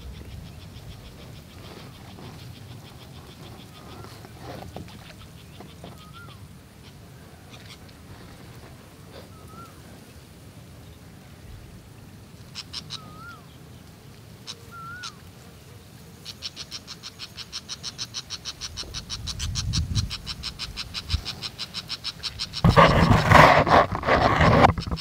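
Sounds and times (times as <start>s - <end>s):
bird whistled calls: 9.3s - 9.8s, 12.7s - 13.5s, 14.7s - 15.2s.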